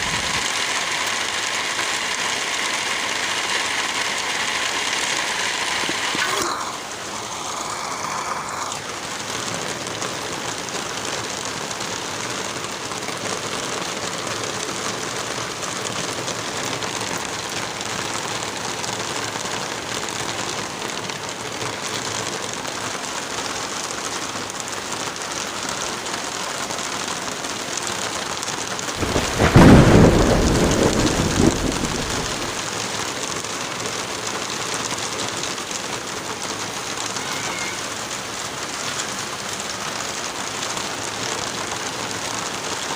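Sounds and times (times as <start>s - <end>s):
steady rain: 0.0s - 42.9s
thunder clap rumbling: 29.0s - 32.8s.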